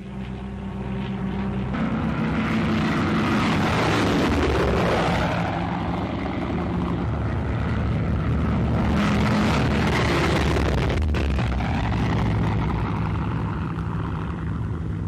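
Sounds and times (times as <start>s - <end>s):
propeller plane engines droning: 0.0s - 15.0s.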